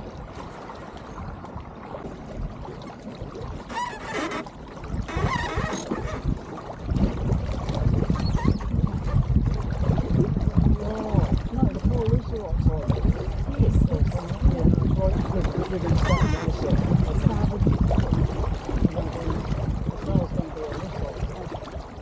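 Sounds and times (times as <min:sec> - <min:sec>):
water washing along hull: 0:00.0 - 0:22.0
wind buffeting microphone: 0:00.0 - 0:22.0.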